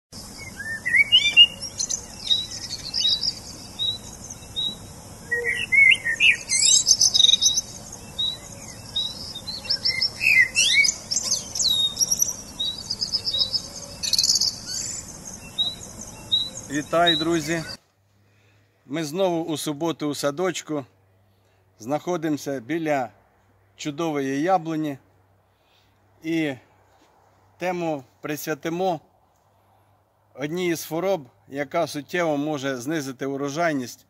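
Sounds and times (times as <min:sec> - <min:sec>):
songbirds chirping and twittering: 0:00.2 - 0:34.0.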